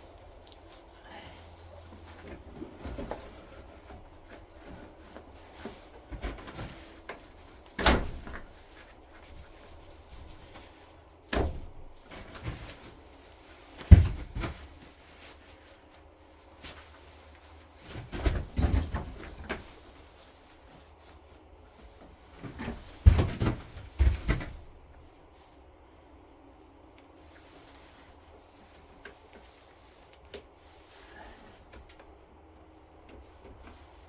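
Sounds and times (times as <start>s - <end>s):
knocks and clunks of hard objects: 13.8s - 14.6s, 22.4s - 24.7s.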